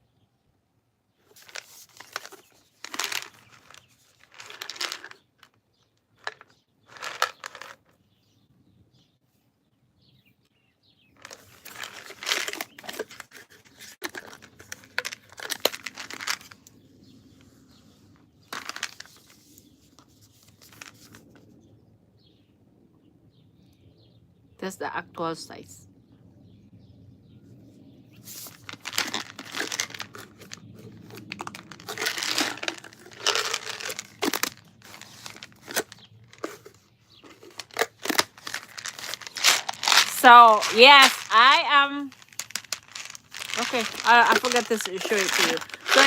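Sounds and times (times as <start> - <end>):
packaging crinkling and tearing: 1.3 - 5.5, 11.2 - 16.6, 28.3 - 46.0.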